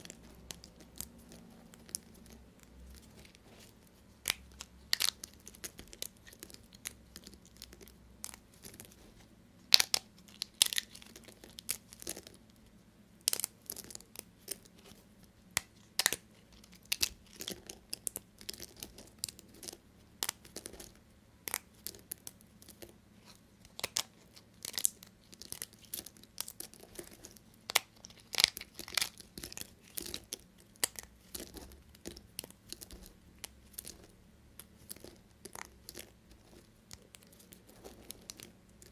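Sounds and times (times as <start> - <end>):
soap pieces snapping: 4.2 - 8.9, 9.7 - 12.4, 13.2 - 14.7, 15.5 - 22.9, 23.6 - 38.9
knife crunching through soap: 15.6 - 34.1.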